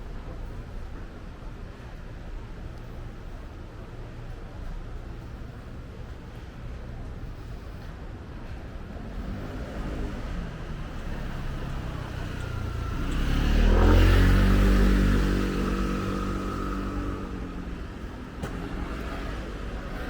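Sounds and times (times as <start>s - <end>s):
vehicle driving past: 8.9s - 20.0s.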